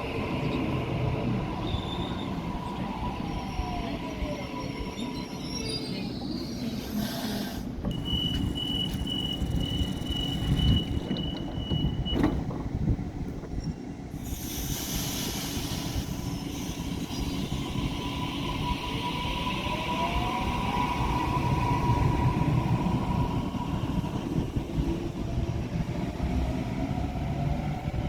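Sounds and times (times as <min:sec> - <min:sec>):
train rumbling on rails: 0:00.0 - 0:28.0
high steady squeal: 0:07.9 - 0:12.3.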